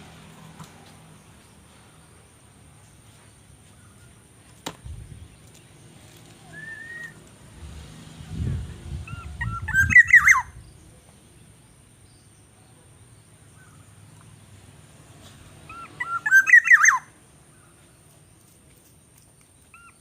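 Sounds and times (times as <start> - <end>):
bird chirping whistled notes: 6.5 - 7.2, 9.1 - 10.8, 15.7 - 17.1.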